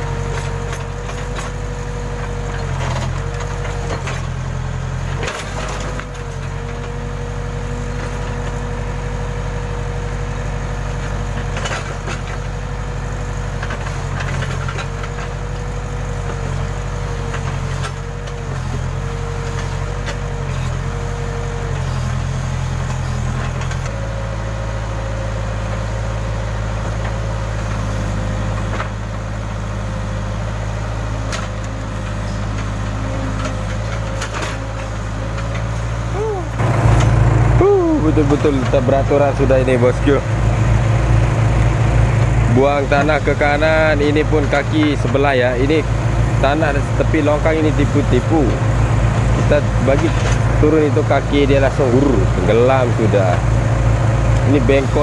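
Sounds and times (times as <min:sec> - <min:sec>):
diesel engine running: 0:00.0 - 0:55.0
hydraulic whine: 0:31.6 - 0:55.0.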